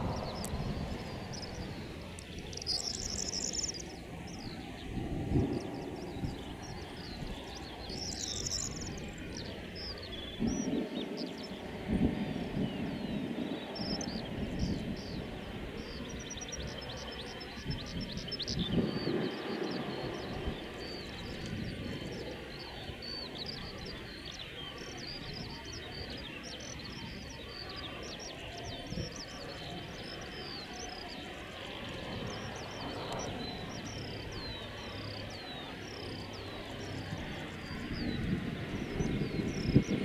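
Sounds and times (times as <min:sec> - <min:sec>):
low rumble: 0:00.0 - 0:07.9
faint high whine: 0:00.0 - 0:40.0
small birds chirping: 0:00.0 - 0:40.0.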